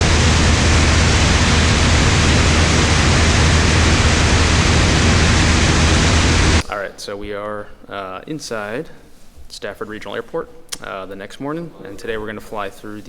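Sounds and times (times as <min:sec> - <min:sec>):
airplane engine and propeller drone: 0:00.0 - 0:06.6
rushing airflow: 0:00.0 - 0:06.7.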